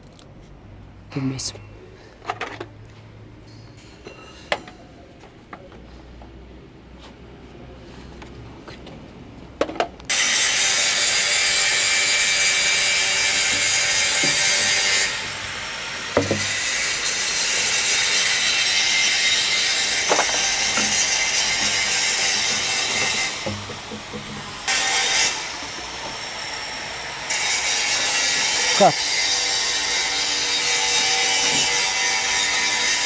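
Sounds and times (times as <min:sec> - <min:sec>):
saw cutting plastic pipe: 0:10.1 - 0:33.0
sharp knocks: 0:16.2 - 0:16.6, 0:19.9 - 0:25.3.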